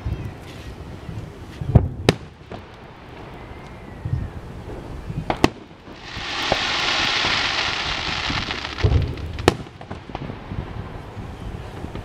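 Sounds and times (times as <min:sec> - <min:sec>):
firework crackling hiss: 0:00.7 - 0:12.0
firework sharp cracks: 0:01.8 - 0:03.3, 0:04.7 - 0:11.0
firework low boom: 0:04.0 - 0:12.0
firework bang: 0:04.6 - 0:10.8.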